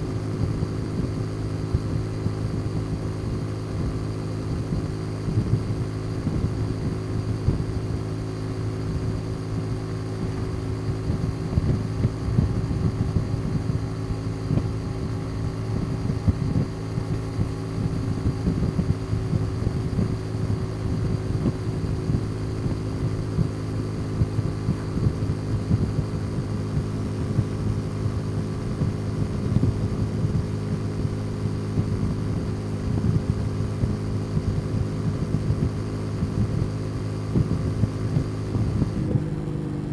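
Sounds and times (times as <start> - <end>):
motorcycle engine running steadily: 0.0 - 39.9
wind buffeting on microphone: 9.7 - 39.3.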